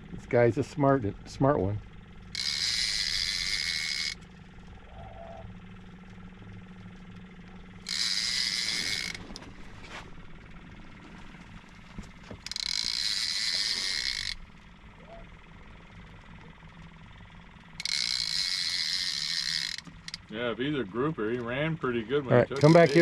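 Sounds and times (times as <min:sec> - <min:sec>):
fishing reel whirring: 0:01.4 - 0:05.6, 0:07.2 - 0:11.0, 0:11.7 - 0:20.4, 0:22.5 - 0:23.0.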